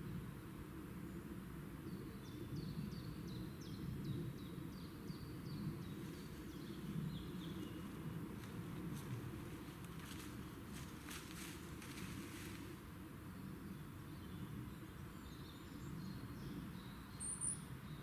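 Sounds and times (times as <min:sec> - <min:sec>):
low outdoor rumble: 0:00.0 - 0:18.0
songbird singing downward notes: 0:13.7 - 0:17.7.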